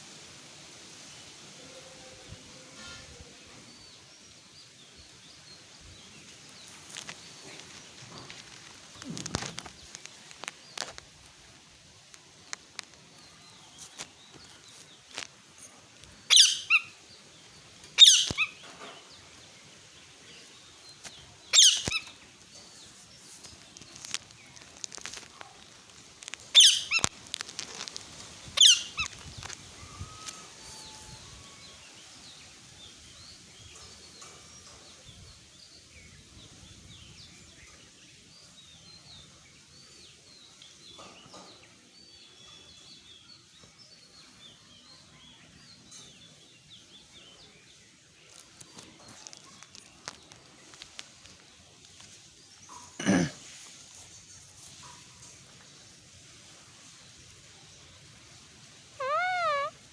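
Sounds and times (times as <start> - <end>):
parrot screeching: 16.3 - 16.9, 18.0 - 18.5, 21.6 - 22.1, 26.5 - 27.1, 28.6 - 29.1, 59.0 - 59.8.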